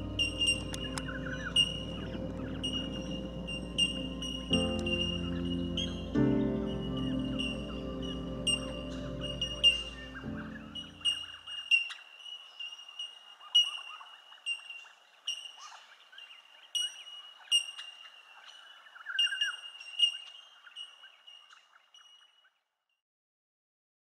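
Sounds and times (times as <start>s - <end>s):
low music notes: 0.0s - 11.1s
steady high-pitched tone: 0.0s - 11.3s
bird chirps and calls: 0.0s - 22.4s.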